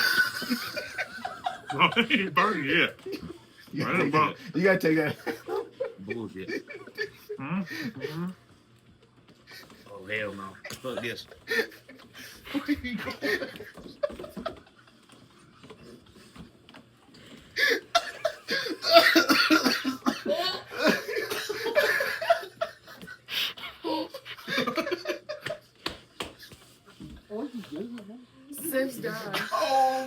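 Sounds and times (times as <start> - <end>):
men coughing: 0.0 - 3.3, 17.6 - 25.2
men laughing: 0.0 - 8.4, 9.5 - 15.2, 17.6 - 25.8.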